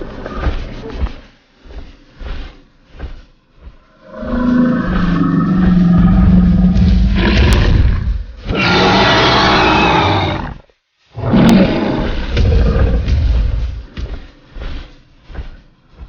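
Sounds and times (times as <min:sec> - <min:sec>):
dinosaur roaring: 0:04.0 - 0:10.6, 0:11.2 - 0:13.4.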